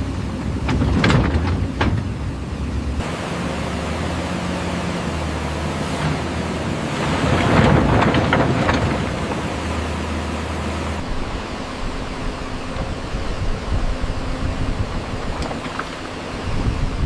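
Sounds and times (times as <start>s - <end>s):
excavator diesel engine humming: 0.0s - 17.0s
rattling and scraping: 0.6s - 2.3s, 6.9s - 9.8s.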